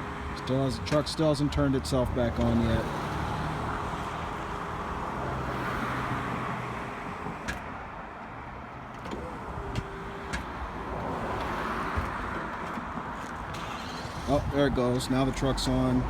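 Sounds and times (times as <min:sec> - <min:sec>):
hydraulic boom humming: 0:08.8 - 0:14.5.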